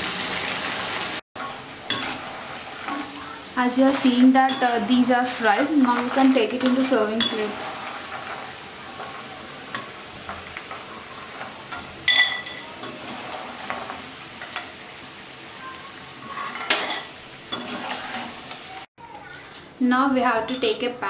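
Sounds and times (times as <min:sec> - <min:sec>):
food sizzling in hot oil: 0:00.0 - 0:18.9
metal skimmer scraping pan: 0:01.4 - 0:03.3, 0:04.0 - 0:14.7, 0:16.2 - 0:18.4.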